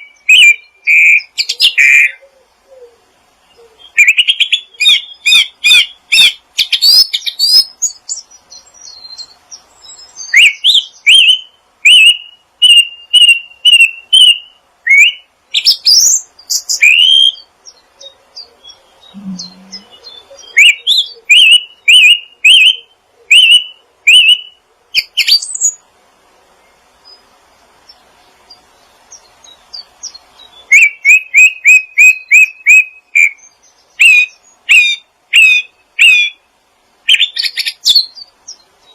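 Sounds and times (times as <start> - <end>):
small songbirds chirping: 0.0 - 38.9.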